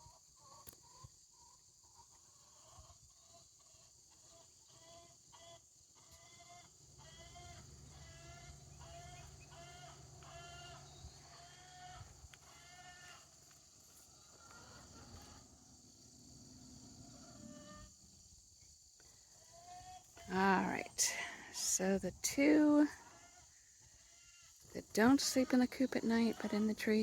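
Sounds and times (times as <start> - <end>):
farm bird calling: 0.0 - 27.0
insects chirring: 0.0 - 27.0.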